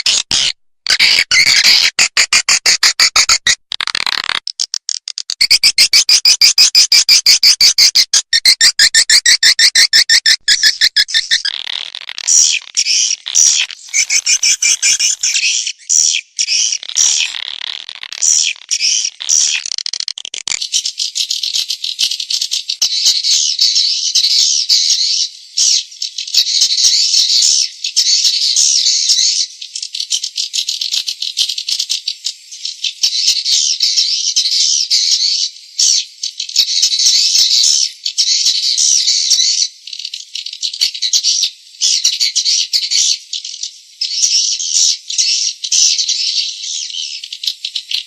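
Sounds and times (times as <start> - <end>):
high-pitched bird chattering: 0.0 - 48.0.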